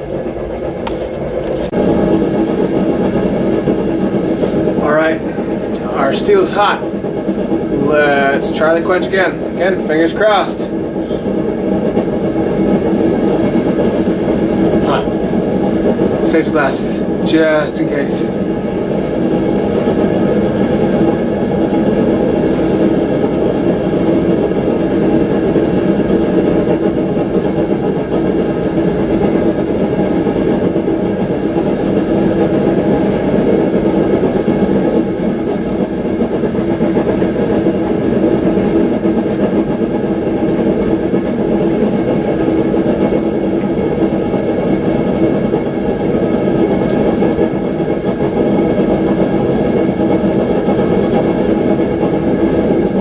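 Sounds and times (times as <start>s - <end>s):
forge droning hum: 0.0s - 53.0s.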